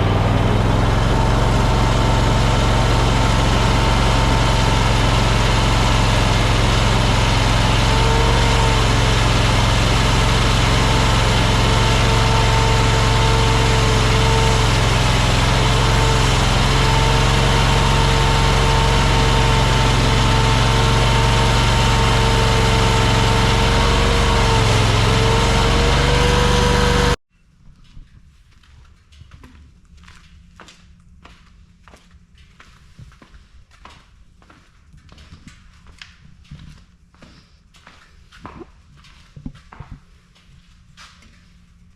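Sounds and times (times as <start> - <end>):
skid steer engine running: 0.0 - 27.2.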